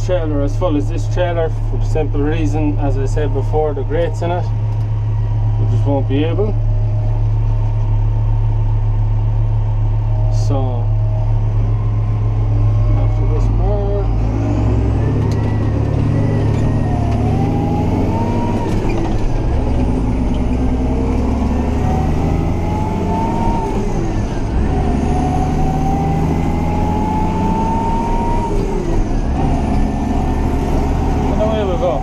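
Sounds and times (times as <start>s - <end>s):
tractor engine under load: 0.0s - 26.7s, 27.6s - 32.0s.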